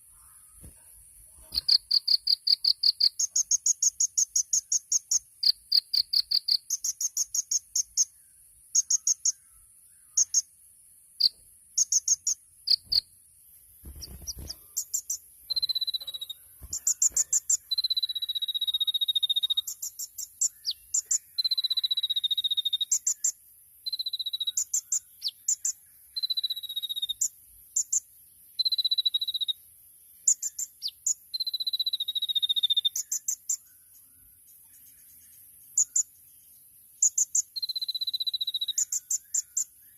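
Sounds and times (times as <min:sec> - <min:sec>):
bird rapid high chattering: 0:01.4 - 0:08.1, 0:13.8 - 0:28.0.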